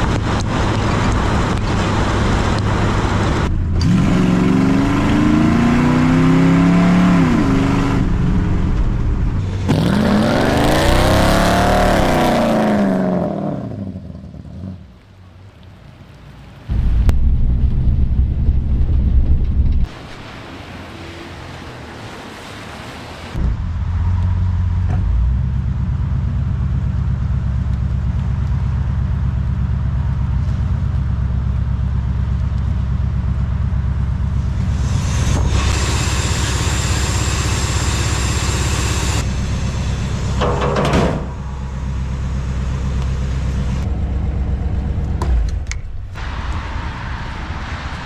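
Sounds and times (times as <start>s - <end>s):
car engine running: 23.4s - 46.2s
hiss: 34.6s - 39.3s.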